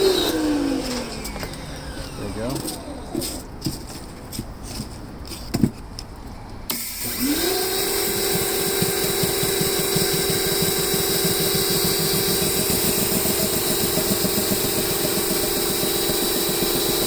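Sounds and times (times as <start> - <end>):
pressure washer motor whining: 0.0 - 3.4, 6.7 - 17.0
pump pulsing: 6.7 - 17.0.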